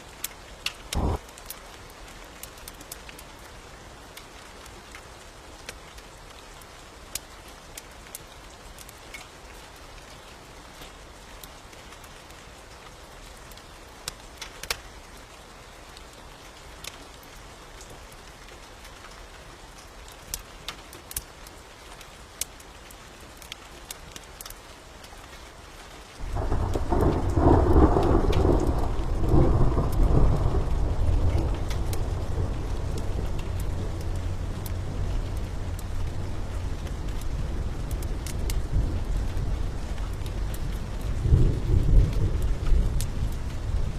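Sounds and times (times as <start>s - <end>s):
steady rain: 0.0s - 43.9s
thunder rumble: 0.9s - 1.2s, 26.2s - 43.9s.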